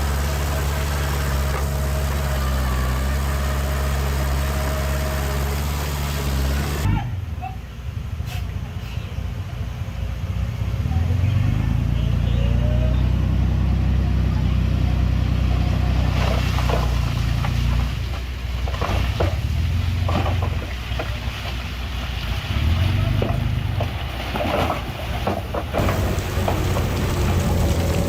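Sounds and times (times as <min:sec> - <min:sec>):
heavy diesel engine running: 0:00.0 - 0:06.9, 0:25.5 - 0:28.0
knocks and clatter: 0:16.3 - 0:21.6, 0:23.1 - 0:28.0.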